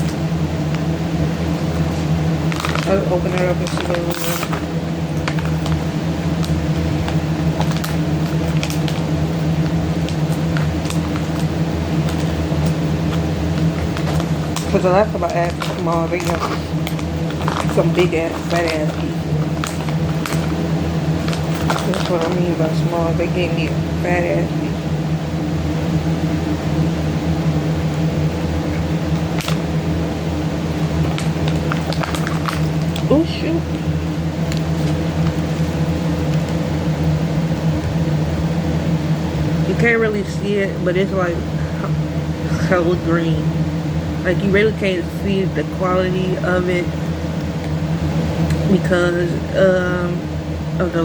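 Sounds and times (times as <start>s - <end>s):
low mechanical hum: 0.0s - 51.0s
package being opened by hand: 1.8s - 9.4s, 10.0s - 22.5s, 28.7s - 29.7s, 30.9s - 33.1s, 34.4s - 36.6s.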